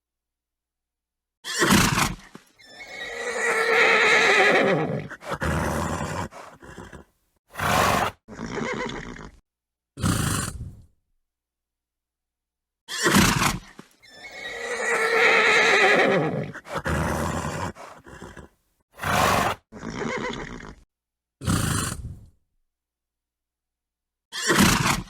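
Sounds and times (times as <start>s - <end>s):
horses neighing and snorting: 1.5s - 9.4s, 12.9s - 20.8s.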